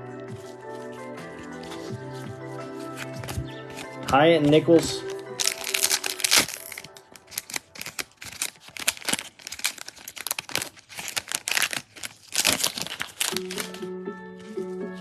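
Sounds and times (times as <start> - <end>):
plastic wrappers crinkling and tearing: 2.8 - 13.8.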